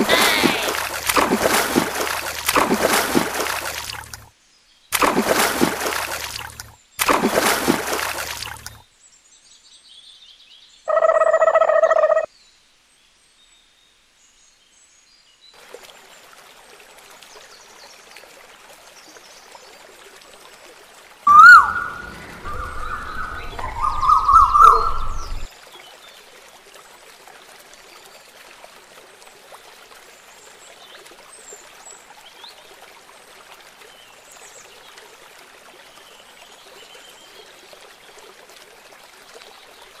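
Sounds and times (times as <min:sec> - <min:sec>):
trickling water: 0:00.0 - 0:08.9, 0:15.5 - 0:40.0
bird chirps: 0:21.3 - 0:25.5.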